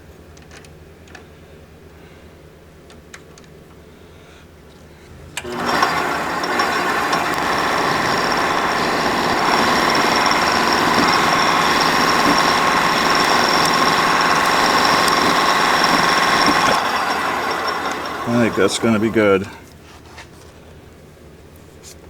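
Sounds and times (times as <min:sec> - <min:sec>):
metal lathe cutting: 0:05.4 - 0:19.6
steady machine whine: 0:05.4 - 0:19.6.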